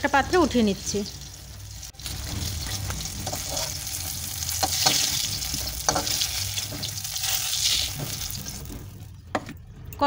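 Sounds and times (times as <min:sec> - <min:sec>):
food sizzling in oil: 0:00.0 - 0:09.1
spatula scraping pan: 0:02.0 - 0:09.6.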